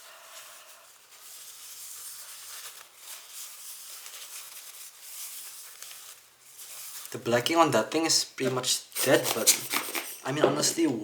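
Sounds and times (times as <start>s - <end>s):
tissue rubbing on glass: 0.0s - 7.1s.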